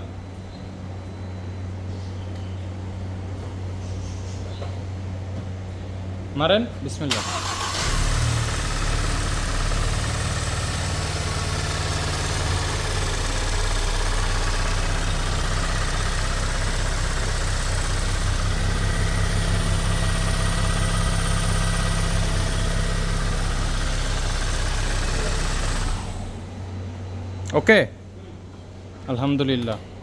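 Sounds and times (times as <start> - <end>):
car engine idling: 7.1 - 27.2.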